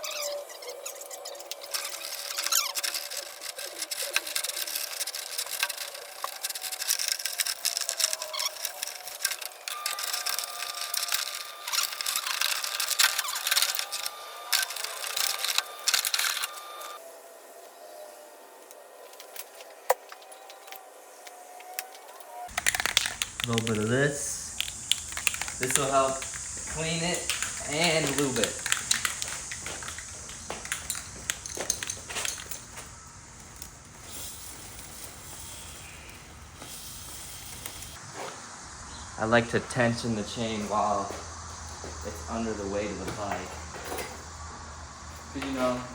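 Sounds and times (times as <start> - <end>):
bike chain clicking and scraping: 0.0 - 17.0, 19.0 - 38.6, 39.6 - 45.9
aerosol spray hiss: 23.2 - 30.7.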